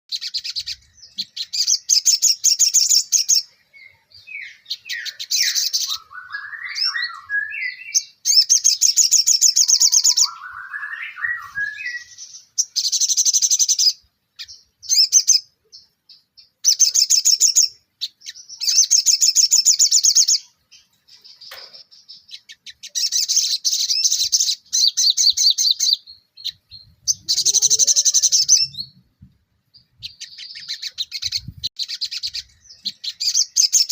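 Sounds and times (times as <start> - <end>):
songbird singing: 0.1 - 33.9.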